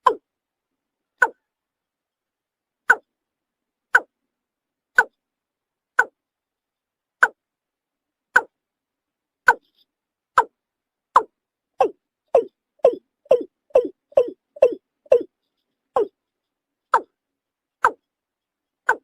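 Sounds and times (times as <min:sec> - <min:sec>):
watercock calling hollow notes: 0:11.2 - 0:15.3.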